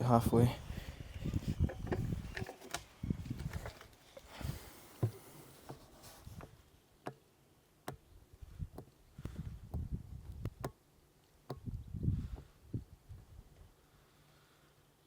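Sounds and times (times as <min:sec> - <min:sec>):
handling clicks and knocks: 0:01.4 - 0:04.3.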